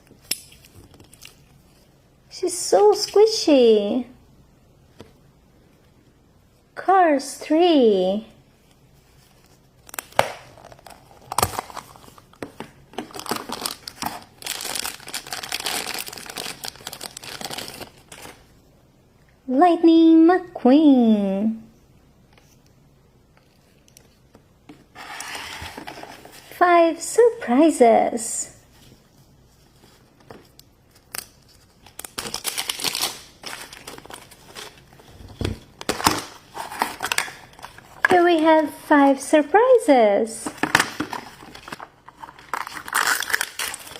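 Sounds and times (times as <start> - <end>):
wrapper crinkling and tearing: 9.8 - 18.4, 30.5 - 35.1, 35.8 - 38.1, 40.6 - 43.9.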